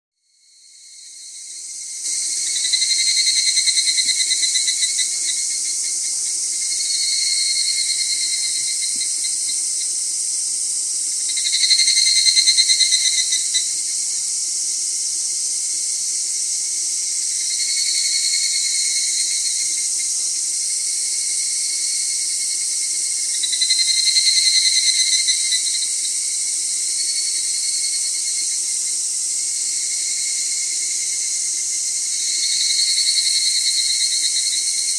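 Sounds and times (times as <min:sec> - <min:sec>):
insect pulsed trill: 0:00.2 - 0:34.9
insects shrilling: 0:01.4 - 0:14.6.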